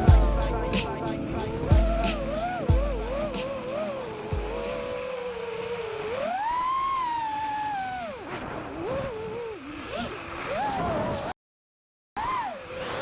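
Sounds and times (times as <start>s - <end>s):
quadcopter motors whining: 1.8s - 11.3s.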